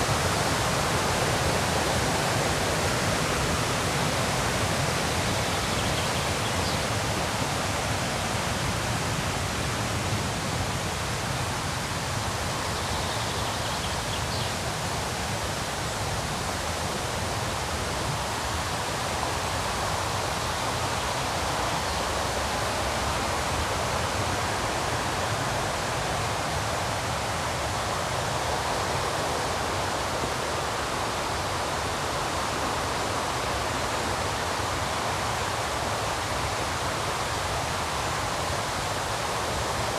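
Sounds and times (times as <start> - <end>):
river rapids roaring: 0.0 - 39.9
faint bird chirps: 5.4 - 6.8.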